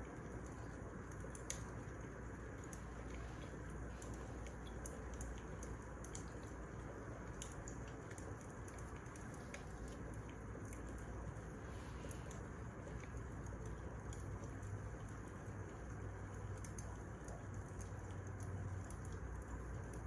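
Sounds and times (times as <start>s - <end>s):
wood fire crackling and popping: 0.3s - 11.3s.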